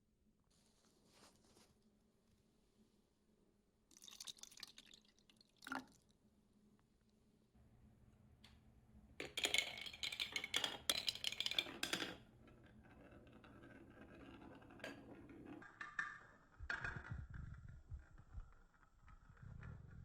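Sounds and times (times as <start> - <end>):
balls clattering down wooden track: 9.2 - 20.0.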